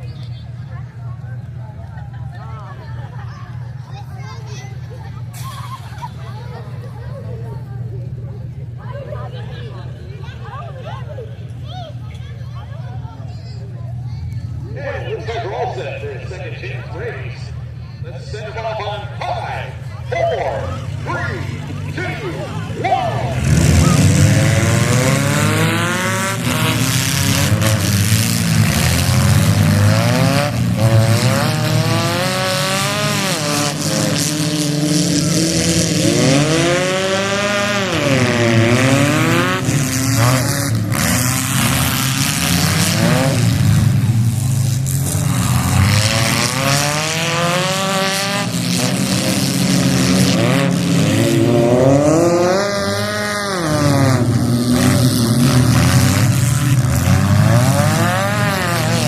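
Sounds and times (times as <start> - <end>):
car engines revving hard: 0.0 - 59.0.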